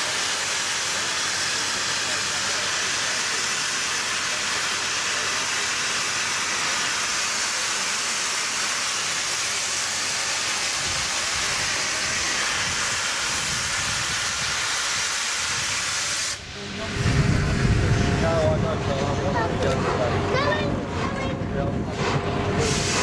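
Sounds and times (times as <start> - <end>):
steam locomotive hissing: 0.0 - 23.0
uneven low rumble: 16.4 - 22.7.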